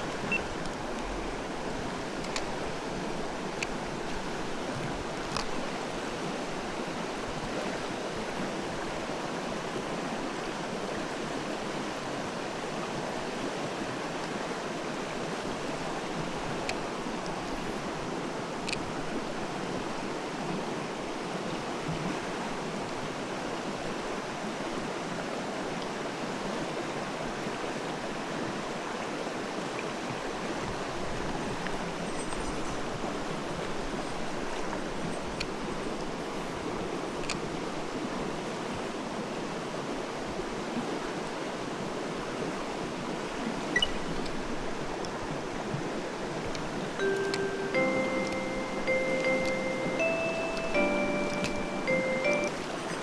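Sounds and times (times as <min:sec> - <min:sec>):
stream rushing over rocks: 0:37.5 - 0:53.0.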